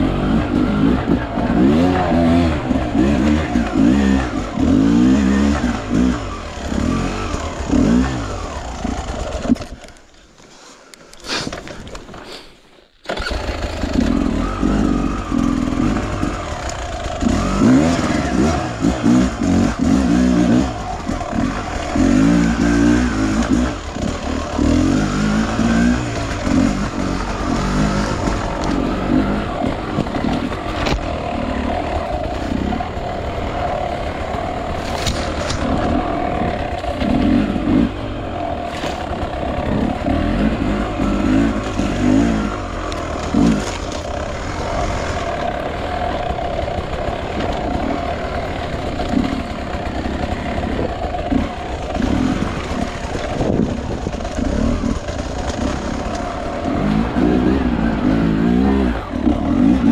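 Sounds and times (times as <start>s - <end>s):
dirt bike engine revving: 0.0s - 9.9s, 13.0s - 59.9s.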